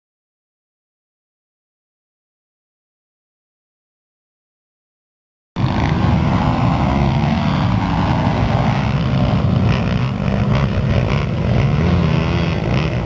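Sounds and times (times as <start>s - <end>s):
pit bike engines buzzing: 5.6s - 13.0s.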